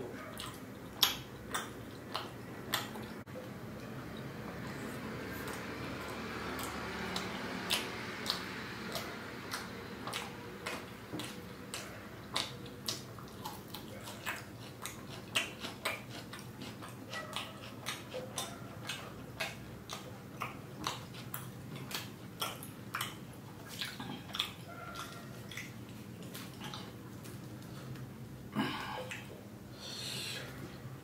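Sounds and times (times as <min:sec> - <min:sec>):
chewing with wet mouth clicks: 0:00.1 - 0:28.1.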